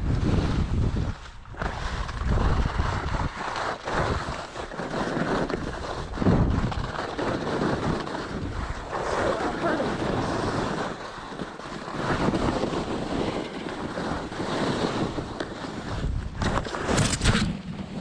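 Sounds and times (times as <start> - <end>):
wind rushing over microphone: 0.0 - 18.0
skis hissing on snow: 7.6 - 16.1.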